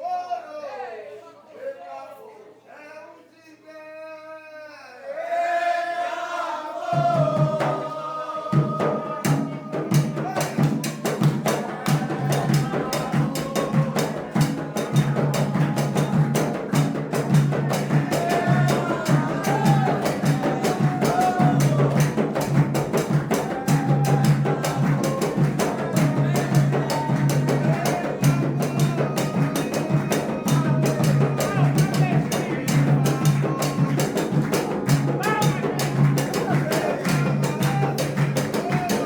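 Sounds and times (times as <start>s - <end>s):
voices singing a chant: 4.9s - 39.0s
fast hand drumming: 8.5s - 39.0s.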